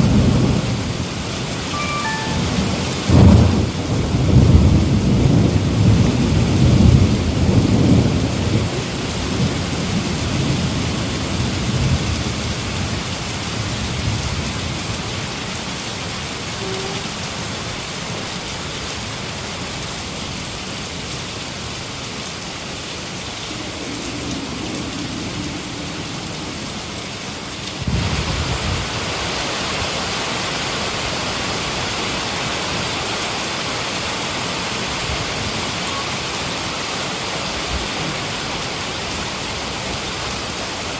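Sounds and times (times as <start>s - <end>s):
heavy rain hissing: 0.0s - 40.9s
thunder rumble: 2.4s - 13.0s.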